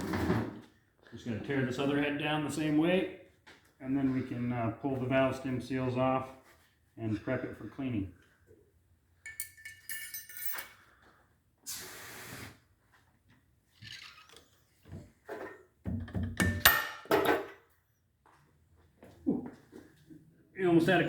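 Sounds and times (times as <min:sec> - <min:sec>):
metal parts clinking and clanking: 0:09.3 - 0:10.8
brief hiss: 0:11.7 - 0:12.6.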